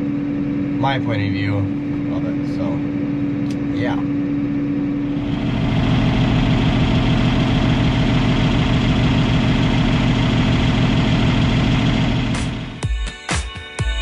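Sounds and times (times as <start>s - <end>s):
farm machinery engine idling: 5.1s - 12.8s.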